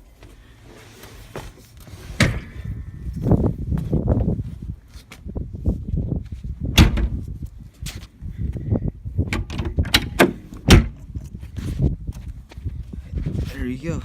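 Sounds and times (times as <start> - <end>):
door knocks and latch clicks: 6.8 - 7.2, 9.3 - 11.0.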